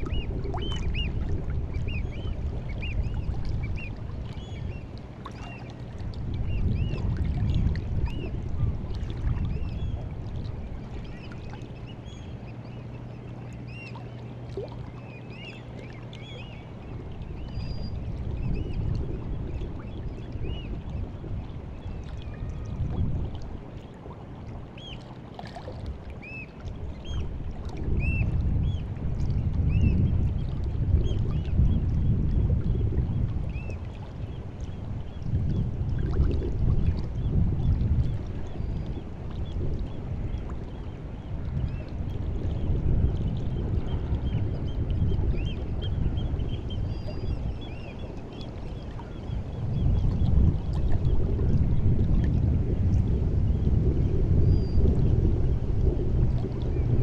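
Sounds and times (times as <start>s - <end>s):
water lapping at the shore: 0.0s - 57.0s.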